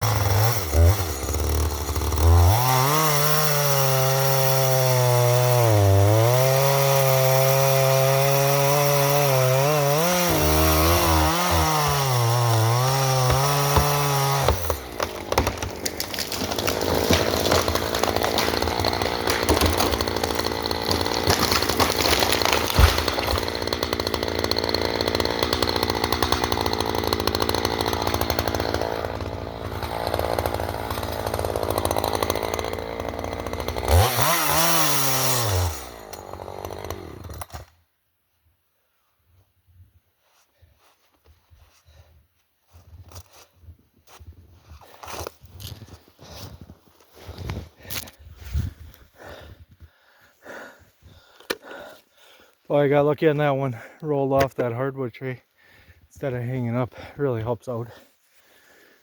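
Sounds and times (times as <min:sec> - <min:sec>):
chainsaw cutting wood: 0:00.0 - 0:37.8.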